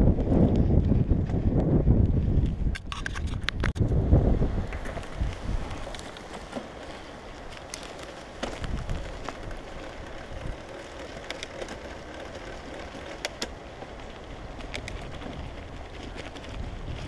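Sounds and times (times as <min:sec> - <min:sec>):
bike rattling over bumps: 0:00.0 - 0:17.0
wind buffeting microphone: 0:00.0 - 0:17.0.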